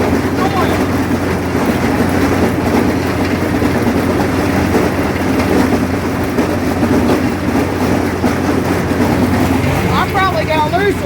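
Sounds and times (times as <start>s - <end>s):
tractor engine drone: 0.0s - 11.0s.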